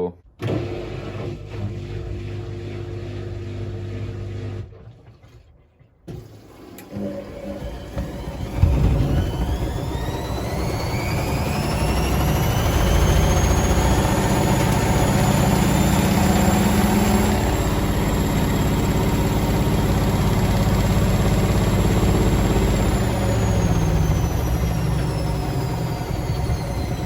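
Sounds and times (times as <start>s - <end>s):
washing machine motor whining: 0.4s - 4.8s, 6.1s - 27.0s.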